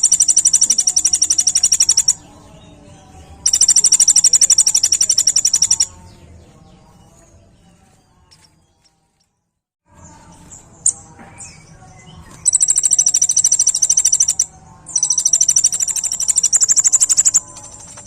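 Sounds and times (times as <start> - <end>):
sharp high bird chip: 0.0 - 2.2, 3.5 - 5.9, 12.3 - 18.0
sunbird singing fast high trills: 10.8 - 18.0.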